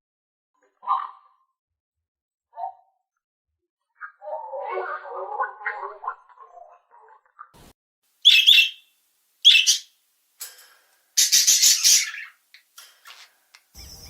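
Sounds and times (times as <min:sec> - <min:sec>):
bird chirping: 0:08.2 - 0:10.0, 0:11.2 - 0:14.0.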